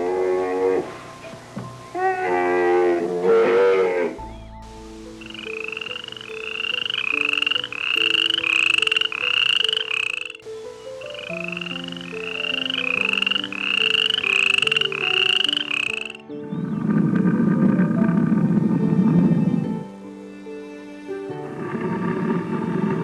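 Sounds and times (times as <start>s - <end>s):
soft background music: 0.0s - 23.0s
animal chirping calls: 5.2s - 16.2s.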